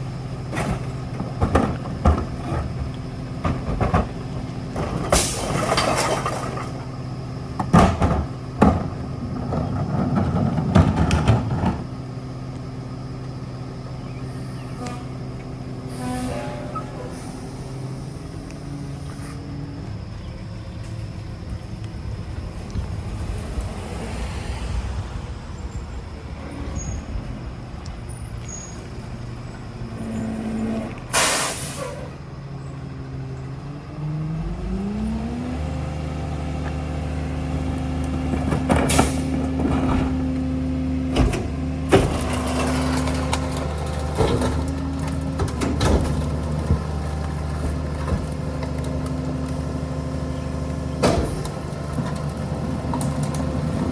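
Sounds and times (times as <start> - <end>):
truck engine running: 0.0 - 53.9
air brake hiss: 5.1 - 5.6, 31.1 - 32.1.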